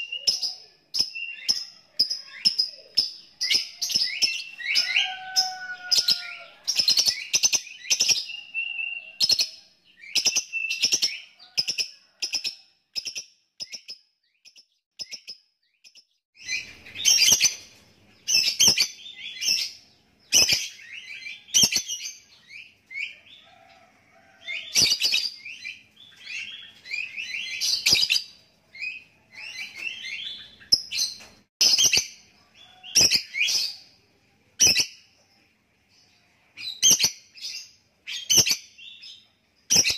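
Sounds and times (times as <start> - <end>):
lovebird clicking chirps: 10.1 - 16.1.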